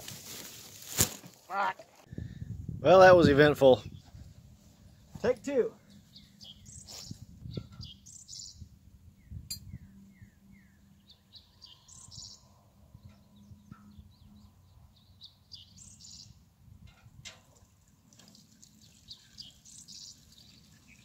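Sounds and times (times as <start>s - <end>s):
birds chirping and singing: 5.8s - 16.4s, 18.8s - 21.0s.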